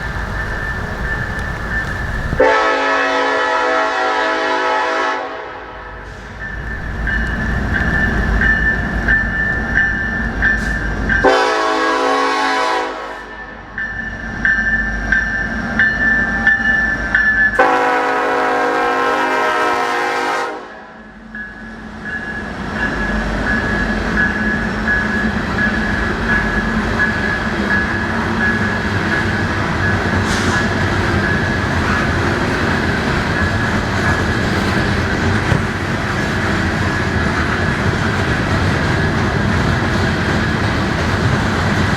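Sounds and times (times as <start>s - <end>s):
wheels clacking over rail joints: 0.0s - 2.5s, 6.5s - 11.5s, 22.9s - 41.9s
crossing bell ringing: 0.0s - 3.0s, 6.3s - 19.2s, 20.9s - 35.5s
train rumble: 0.0s - 41.9s
locomotive horn blasts: 2.4s - 6.1s, 11.2s - 13.5s, 17.6s - 21.0s.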